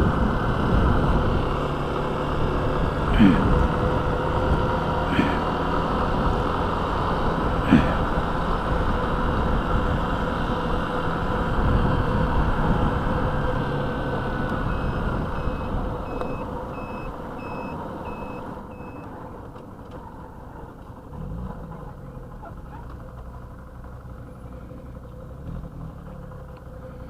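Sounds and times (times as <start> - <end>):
motorcycle engine: 0.0 - 27.0
high electronic beeps: 14.6 - 19.0.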